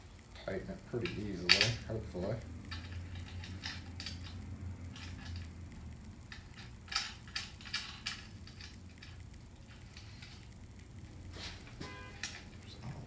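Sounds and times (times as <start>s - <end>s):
faint low hum: 0.0s - 13.0s
metal hardware and tools clicking: 2.7s - 5.5s, 6.3s - 10.5s.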